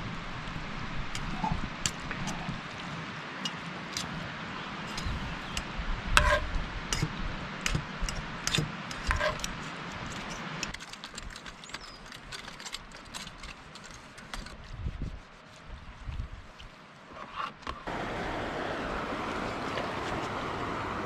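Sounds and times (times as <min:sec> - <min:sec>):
steady hiss: 0:17.9 - 0:21.0.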